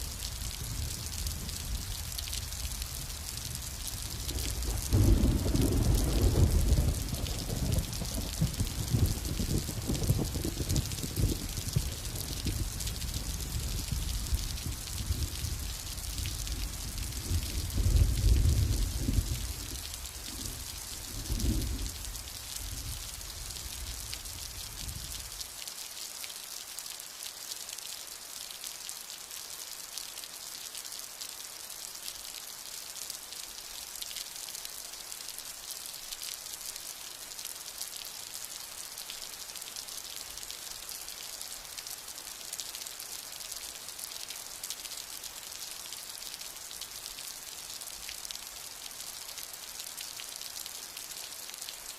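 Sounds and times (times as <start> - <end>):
rain hissing with dripping: 0.0 - 51.9
low thunder rumbling: 0.6 - 23.0.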